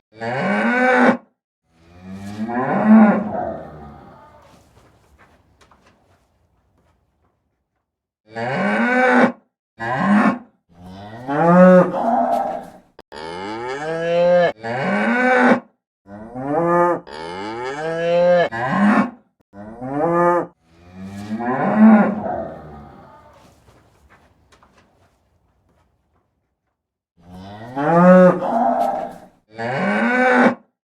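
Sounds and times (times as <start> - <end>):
cow mooing: 0.1 - 4.6, 8.3 - 23.5, 27.2 - 30.6.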